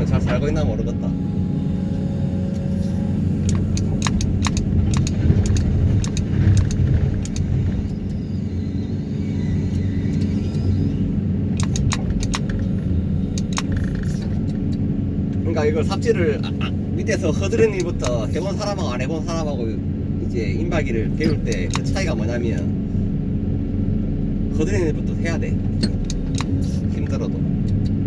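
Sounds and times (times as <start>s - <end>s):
diesel engine drone: 0.0s - 28.0s
sharp clicks and rattles: 3.4s - 8.5s, 11.5s - 15.5s, 21.2s - 22.7s, 25.7s - 28.0s.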